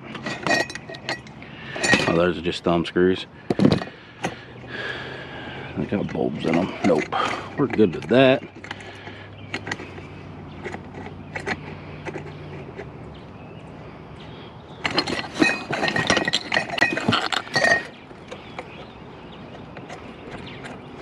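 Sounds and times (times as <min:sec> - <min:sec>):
glass and metal clinking: 0:00.1 - 0:02.3, 0:14.8 - 0:18.4.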